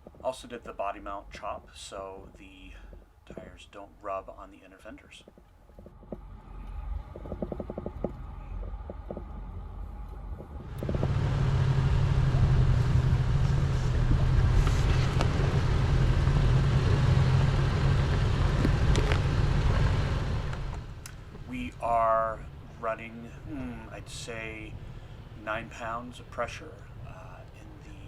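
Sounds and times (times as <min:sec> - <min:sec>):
light clicks and knocks: 0:05.2 - 0:11.1
off-road engine under load: 0:05.9 - 0:28.0.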